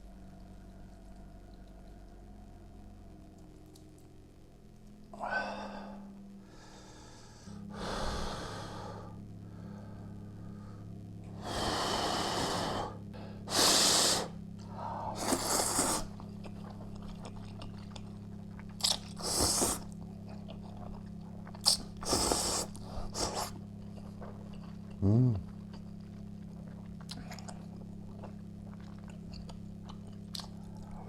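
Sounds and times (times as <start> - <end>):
noodle slurping: 13.5 - 14.3, 15.1 - 16.2, 18.8 - 19.9, 21.6 - 23.6
chewing: 14.4 - 31.0.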